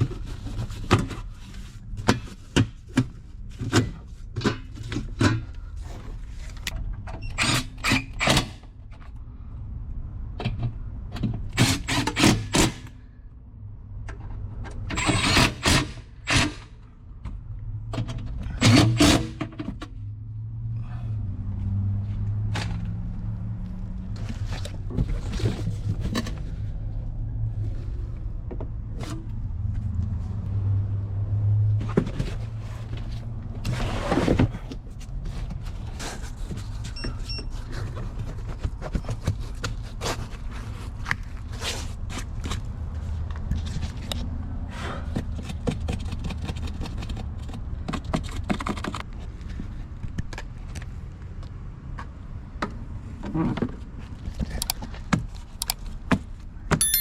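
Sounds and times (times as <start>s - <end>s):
hand tools clicking and knocking: 56.7s - 57.0s.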